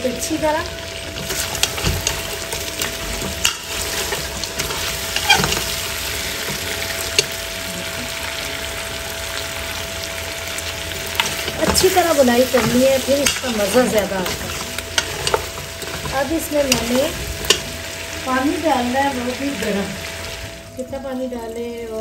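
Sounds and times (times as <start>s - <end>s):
meat sizzling in oil: 0.0s - 20.8s
spoon scraping pot: 1.2s - 7.4s, 11.2s - 17.7s.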